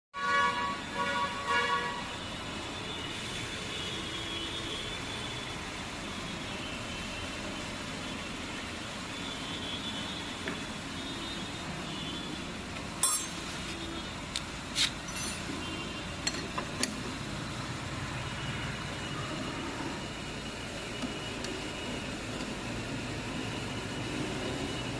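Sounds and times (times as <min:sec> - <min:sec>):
steady mechanical hum: 0:00.2 - 0:24.9
sharp metallic clinks: 0:13.0 - 0:13.6, 0:15.0 - 0:15.6.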